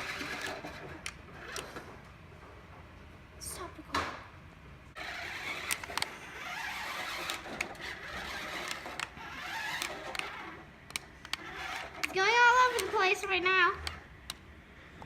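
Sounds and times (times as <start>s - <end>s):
toy motor and gearbox whirring: 0.0s - 1.8s, 5.0s - 14.0s
sharp clicks: 5.4s - 6.2s, 6.9s - 13.2s, 13.8s - 14.4s.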